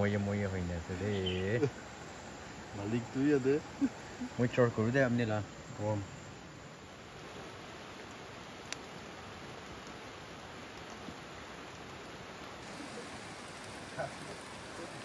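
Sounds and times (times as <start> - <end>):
heavy rain falling: 7.1 - 15.0.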